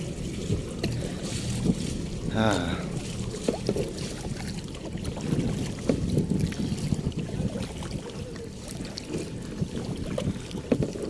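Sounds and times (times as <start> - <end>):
water splashing around a kayak: 0.0 - 11.0
wind buffeting microphone: 0.0 - 11.0.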